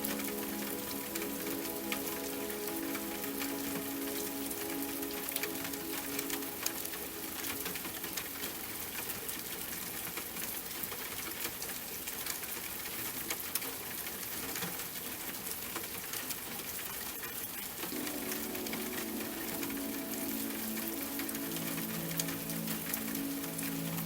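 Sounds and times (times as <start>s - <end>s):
soft slow music: 0.0s - 9.0s, 17.9s - 24.0s
steady rain: 0.0s - 24.0s.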